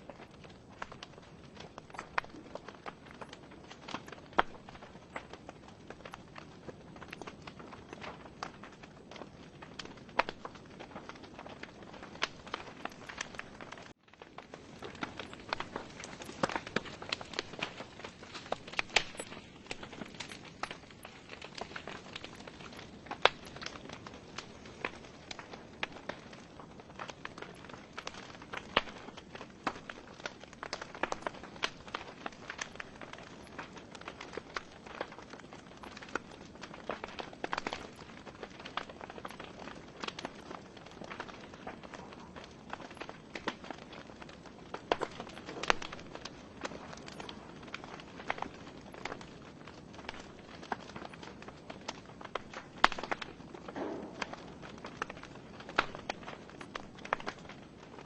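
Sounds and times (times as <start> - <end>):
wood fire crackling and popping: 0.0 - 58.0
soft hiss of flame: 14.3 - 30.4.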